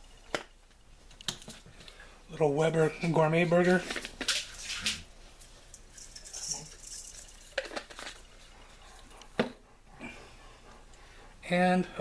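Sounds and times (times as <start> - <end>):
containers clicking and knocking: 5.8 - 8.3.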